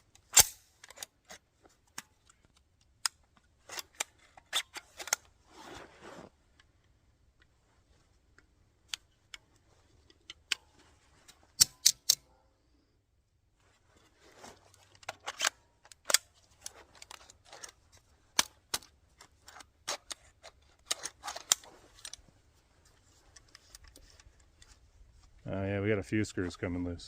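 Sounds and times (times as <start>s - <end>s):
pistol being handled: 0.0s - 5.4s, 8.1s - 12.3s, 13.7s - 25.4s.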